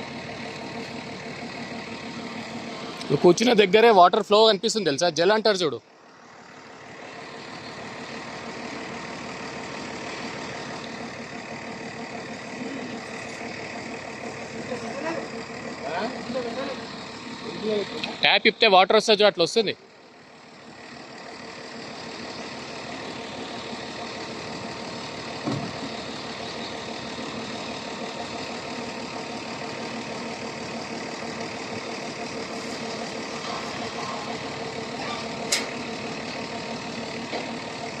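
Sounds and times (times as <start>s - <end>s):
excavator diesel engine running: 0.0s - 38.0s
sharp metallic click: 35.5s - 35.8s.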